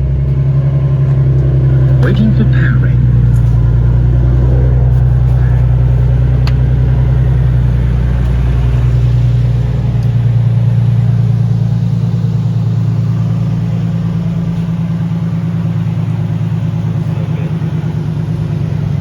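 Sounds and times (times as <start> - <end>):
car engine droning: 0.0 - 19.0.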